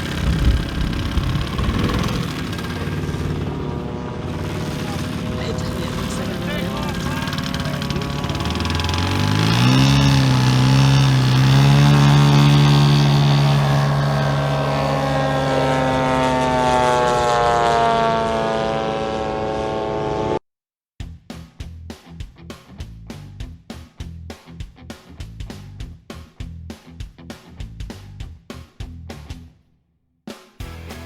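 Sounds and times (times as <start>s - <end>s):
model airplane engine revving: 0.0s - 20.4s.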